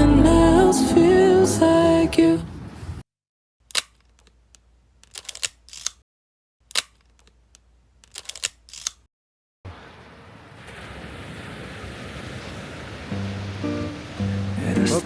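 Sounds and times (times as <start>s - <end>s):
camera shutter clicks: 5.0s - 6.0s, 8.0s - 9.1s
sea surf rushing: 9.7s - 15.0s.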